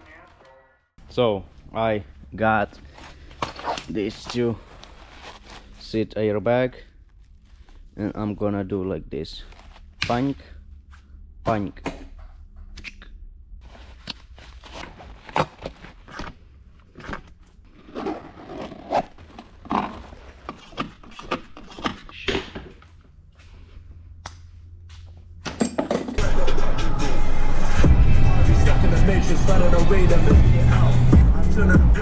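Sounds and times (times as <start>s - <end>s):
steady low hum: 1.0s - 21.0s, 22.0s - 25.5s.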